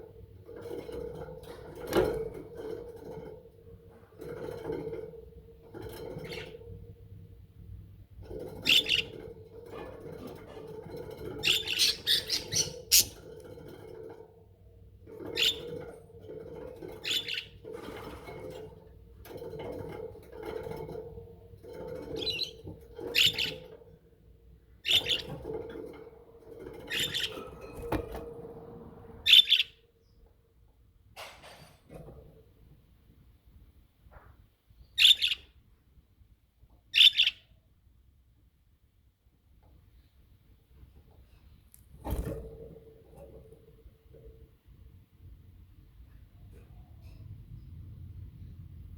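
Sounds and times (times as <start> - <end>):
budgerigars chirping: 11.4 - 13.2, 29.3 - 29.7, 35.0 - 35.5, 37.0 - 37.4
soft bird warble: 11.4 - 13.3.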